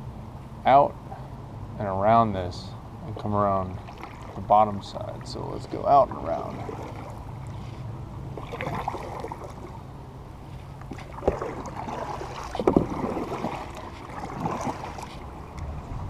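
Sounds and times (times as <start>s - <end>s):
paddle splashing in water: 3.8s - 9.8s, 10.5s - 15.8s.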